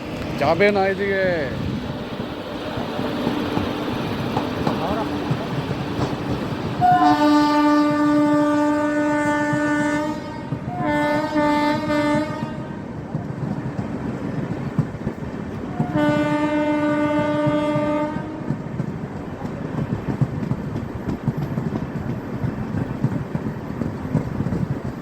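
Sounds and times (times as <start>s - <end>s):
rumble of passing train: 0.0s - 25.0s
train horn blasts: 6.8s - 12.9s, 15.7s - 18.6s.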